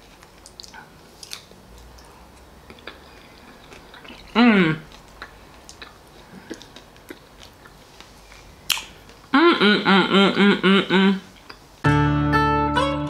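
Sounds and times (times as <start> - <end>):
soft chewing: 0.0 - 9.3, 11.2 - 11.7
short pitched notes: 11.8 - 13.0.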